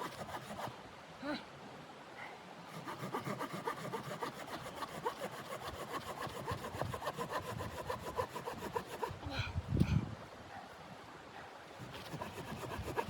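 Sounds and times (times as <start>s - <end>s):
saw cutting through wood: 0.0s - 0.7s, 2.7s - 9.2s, 12.0s - 13.0s.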